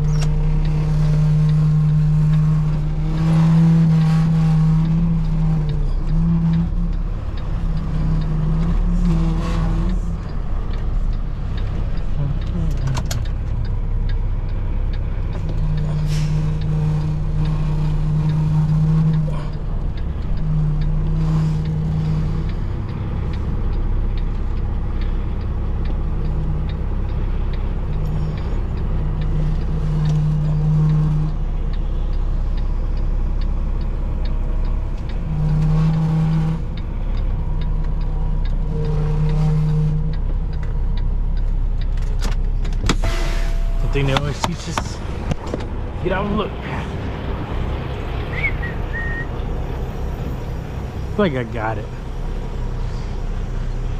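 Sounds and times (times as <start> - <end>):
diesel truck engine rumble: 0.0 - 53.9
deeper hum: 42.6 - 53.4.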